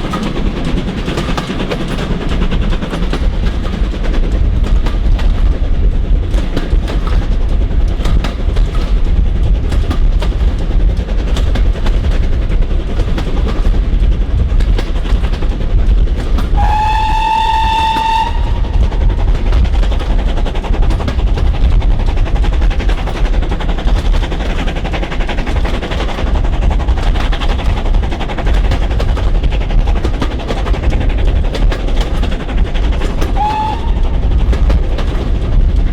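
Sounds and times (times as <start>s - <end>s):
steam train running: 0.0s - 35.9s
steam whistle: 16.6s - 18.8s, 33.4s - 34.1s.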